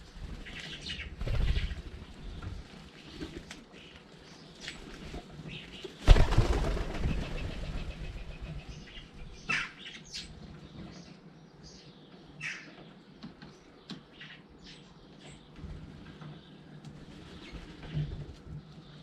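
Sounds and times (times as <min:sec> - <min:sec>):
bird wingbeats flurry: 0:00.0 - 0:03.9, 0:04.6 - 0:09.0
small birds chirping: 0:00.0 - 0:19.0.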